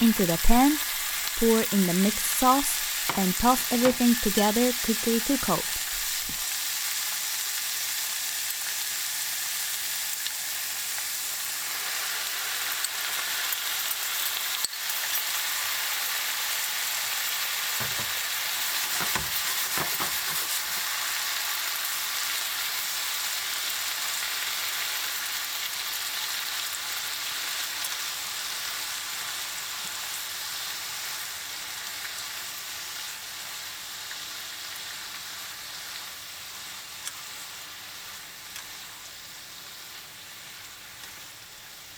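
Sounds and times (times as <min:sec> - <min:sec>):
food sizzling in a frying pan: 0:00.0 - 0:41.9
stirring knocks and thuds: 0:17.8 - 0:18.2, 0:18.9 - 0:20.6.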